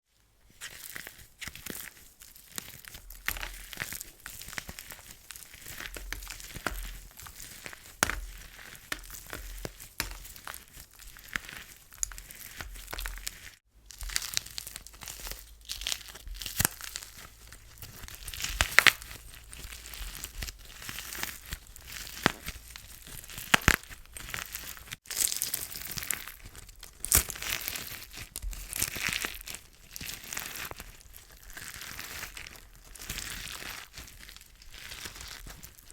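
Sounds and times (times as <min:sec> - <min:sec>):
slime crackling and crunching: 0:00.6 - 0:35.9.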